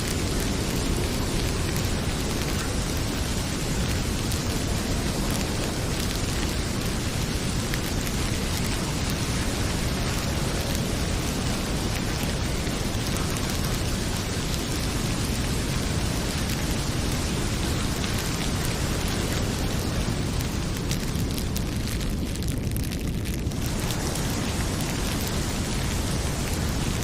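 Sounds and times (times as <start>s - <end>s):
heavy rain pouring: 0.0s - 27.0s
wood fire crackling: 0.0s - 27.0s.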